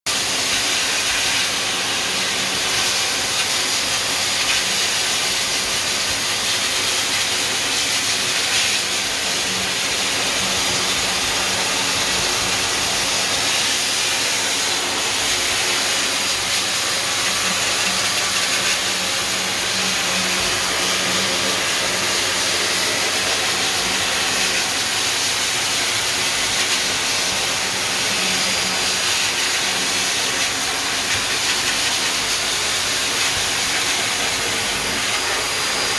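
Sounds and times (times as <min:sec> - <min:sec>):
blow dryer running: 0:00.1 - 0:35.9.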